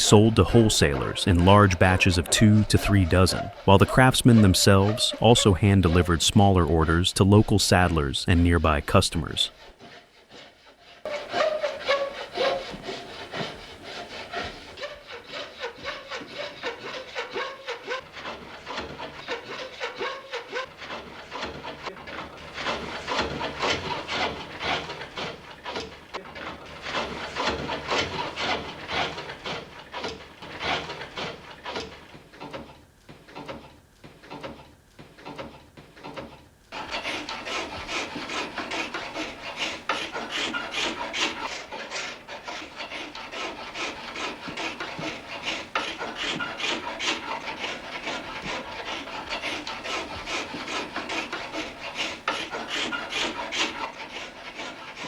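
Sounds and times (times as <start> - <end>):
hand tool shaving wood: 0.0 - 55.0.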